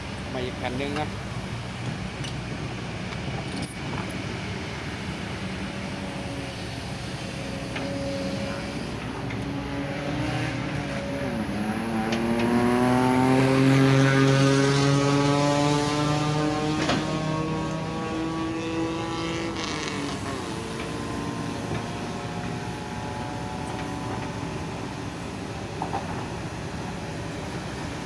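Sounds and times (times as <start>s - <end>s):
excavator diesel engine running: 0.0s - 12.9s, 20.2s - 28.0s.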